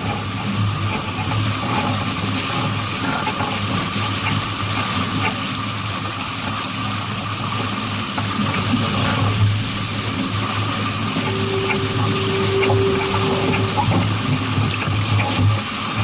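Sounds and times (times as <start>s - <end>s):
water rushing alongside boat: 0.0s - 16.0s
low steady hum: 8.9s - 16.0s.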